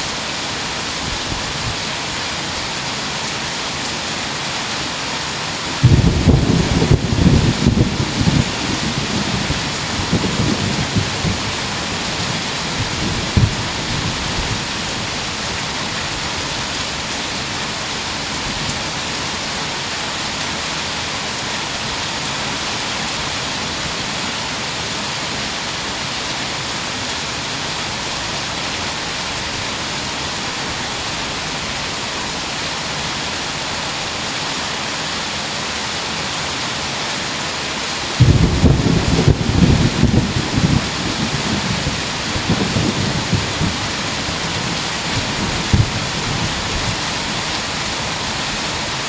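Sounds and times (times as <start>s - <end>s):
heavy rain pouring: 0.0s - 49.0s
thunder clap: 5.8s - 12.2s, 12.8s - 14.5s, 38.2s - 43.9s, 44.5s - 47.0s.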